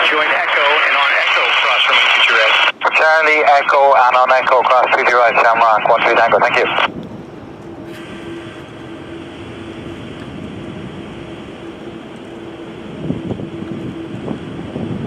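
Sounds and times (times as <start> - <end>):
radio hiss: 0.0 - 6.9
jet engines rumbling: 0.0 - 15.0.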